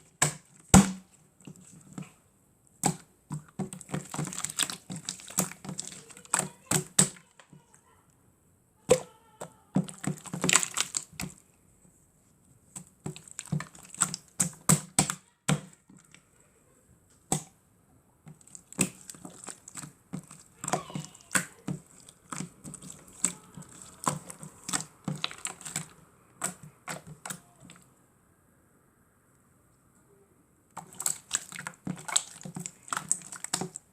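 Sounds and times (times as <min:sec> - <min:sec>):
slime squeezed by hand: 0:09.8 - 0:11.4, 0:18.3 - 0:27.9, 0:30.8 - 0:33.9.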